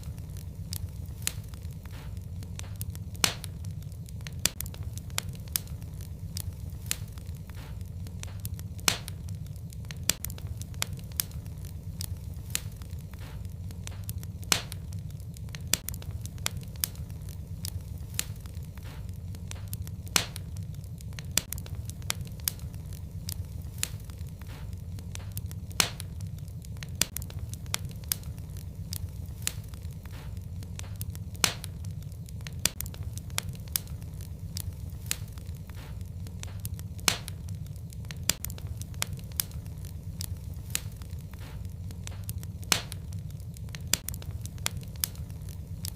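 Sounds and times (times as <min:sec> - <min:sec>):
fireplace fire crackling: 0:00.0 - 0:45.9.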